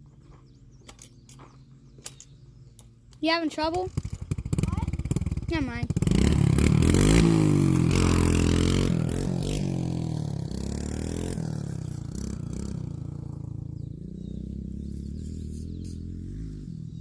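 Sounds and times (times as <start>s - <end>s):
dirt bike engine revving: 3.9s - 17.0s.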